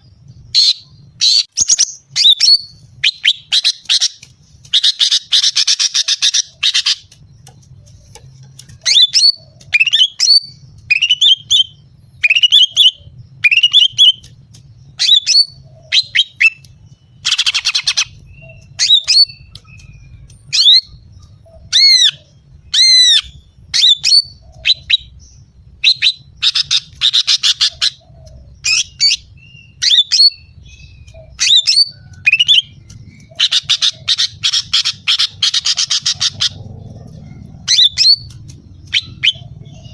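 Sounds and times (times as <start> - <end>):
bird rasping chatters: 0.6 - 25.4, 26.2 - 39.9
bird whistled notes: 8.8 - 14.3, 37.7 - 39.9.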